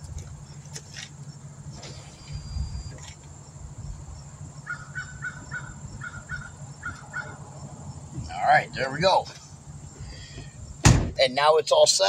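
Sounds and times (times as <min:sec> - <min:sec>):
steady low hum: 0:00.0 - 0:11.7
bird calling: 0:04.6 - 0:07.5
dull thump: 0:10.3 - 0:11.2.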